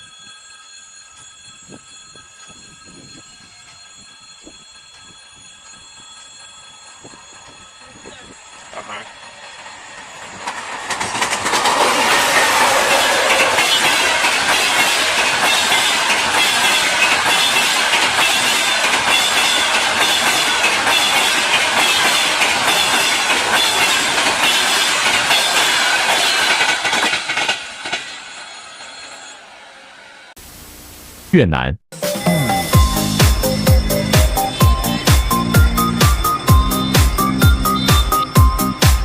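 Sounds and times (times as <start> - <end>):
high wheel squeal: 1.7 - 30.3, 32.9 - 39.0
train wheels clattering: 6.9 - 28.8.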